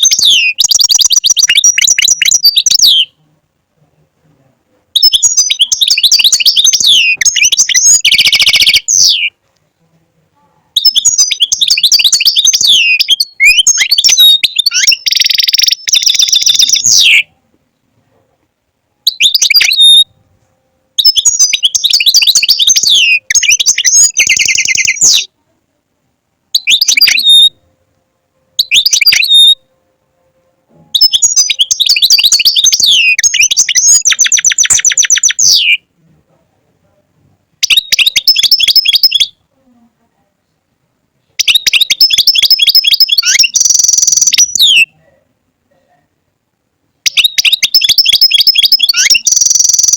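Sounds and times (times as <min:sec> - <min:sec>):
finch singing: 0:00.0 - 0:03.2, 0:05.0 - 0:09.4, 0:10.8 - 0:17.4, 0:19.0 - 0:20.2, 0:21.0 - 0:25.3, 0:26.6 - 0:27.6, 0:28.6 - 0:29.7, 0:30.9 - 0:35.9, 0:37.6 - 0:39.4, 0:41.4 - 0:45.0, 0:47.0 - 0:49.9.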